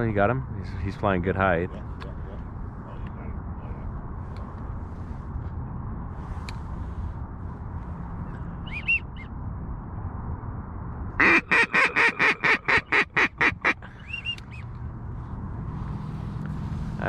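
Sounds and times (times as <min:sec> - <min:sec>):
high whistled chirps: 0:08.6 - 0:09.3, 0:14.0 - 0:14.7
duck quacking: 0:11.2 - 0:14.6.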